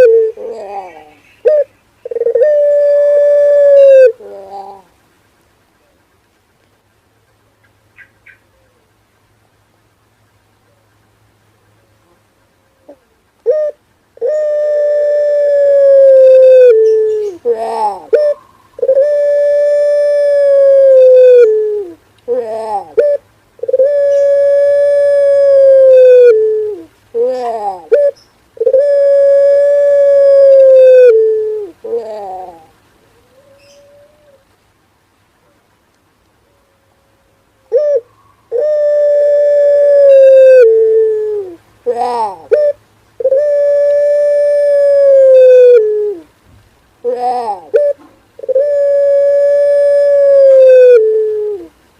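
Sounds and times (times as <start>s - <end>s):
dove cooing: 0.0s - 4.9s, 11.8s - 34.5s, 37.6s - 46.3s, 47.0s - 51.8s.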